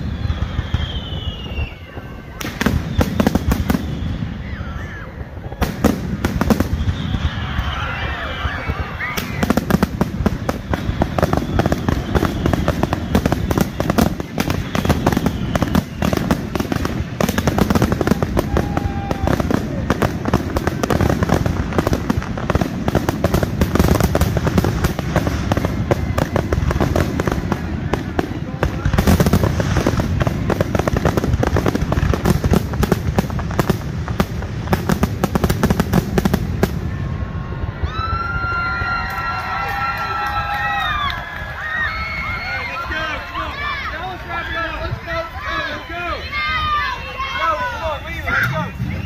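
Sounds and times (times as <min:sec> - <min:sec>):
faint falling firework whistle: 0:00.0 - 0:19.9, 0:47.4 - 0:49.0
fireworks bangs and crackles: 0:00.0 - 0:49.0.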